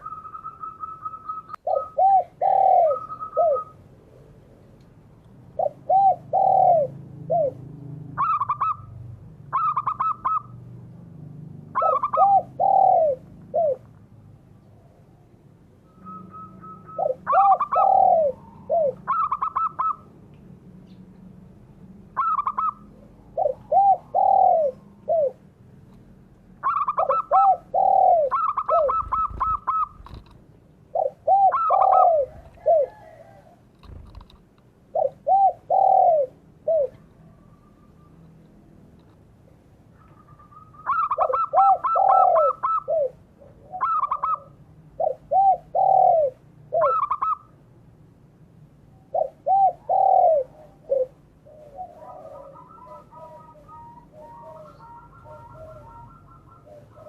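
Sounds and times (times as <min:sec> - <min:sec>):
doves cooing: 0:00.0 - 0:04.4, 0:05.4 - 0:10.8, 0:11.6 - 0:13.9, 0:14.7 - 0:20.2, 0:22.1 - 0:25.5, 0:26.6 - 0:38.5, 0:39.8 - 0:47.6, 0:49.0 - 0:57.0.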